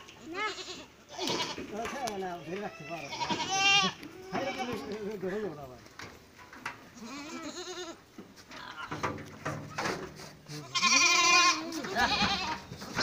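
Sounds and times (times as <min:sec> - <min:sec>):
goats bleating: 0:00.2 - 0:05.2, 0:06.9 - 0:09.0, 0:10.5 - 0:13.0.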